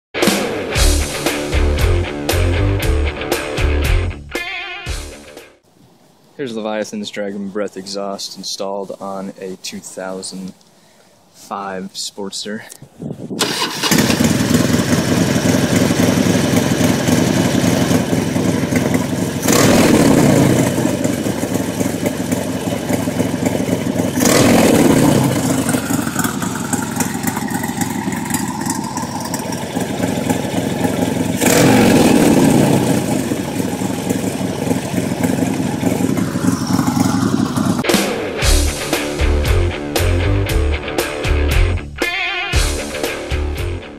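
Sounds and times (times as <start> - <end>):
motorcycle engine idling and revving: 13.4 - 39.2.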